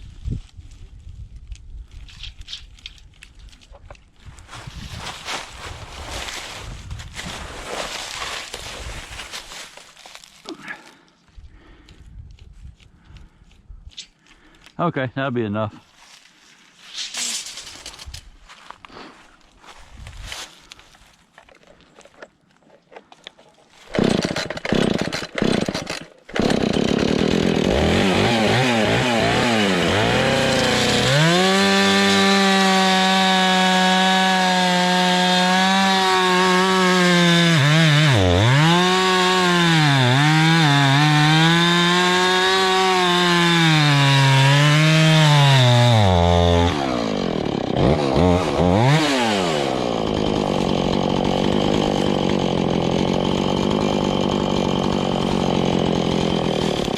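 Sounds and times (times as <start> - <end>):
chainsaw revving and cutting log: 23.9 - 56.9.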